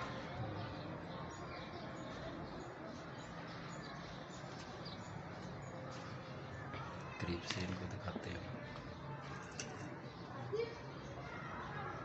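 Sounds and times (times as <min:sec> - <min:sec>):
lovebirds chirping and squeaking: 0:00.0 - 0:12.0.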